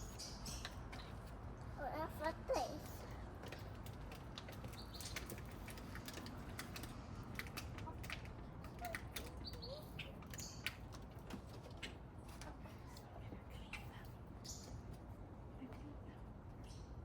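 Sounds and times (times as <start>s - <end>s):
birds chirping: 8.8s - 10.9s.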